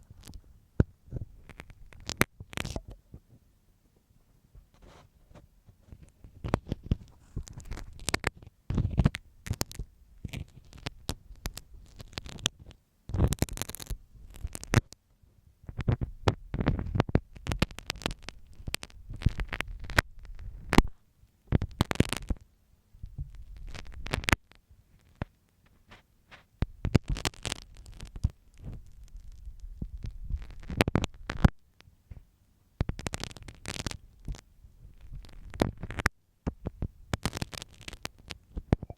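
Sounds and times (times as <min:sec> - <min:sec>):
close scratching and scraping: 0:04.6 - 0:15.0, 0:23.2 - 0:31.5.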